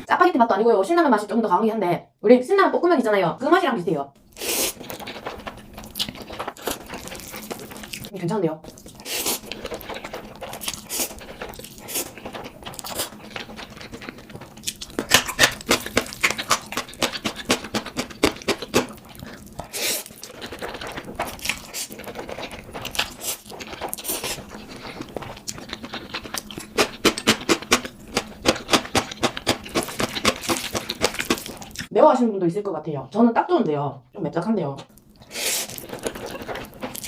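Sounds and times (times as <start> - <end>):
noodles being slurped and chewed: 4.3 - 8.1, 8.7 - 31.9, 34.9 - 37.0.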